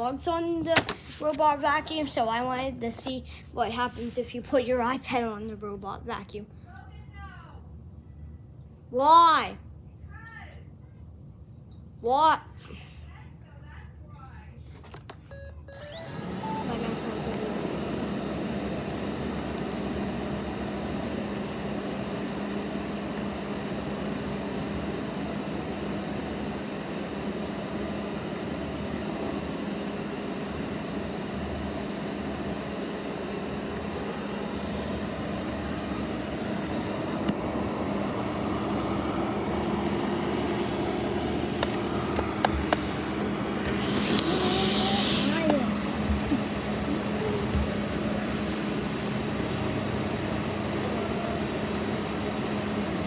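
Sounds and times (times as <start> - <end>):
robot vacuum motor hum: 15.7 - 53.0.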